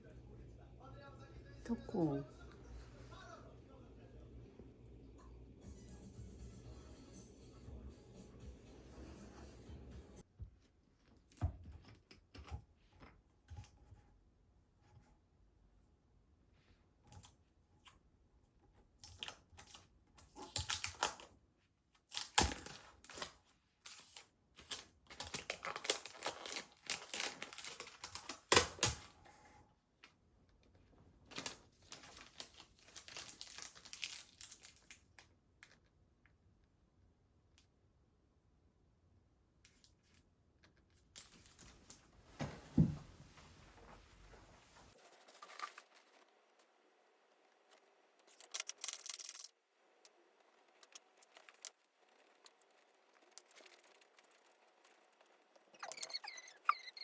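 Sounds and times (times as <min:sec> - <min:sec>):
crinkling and rustling handling noise: 0:16.8 - 0:36.4, 0:39.6 - 0:56.9.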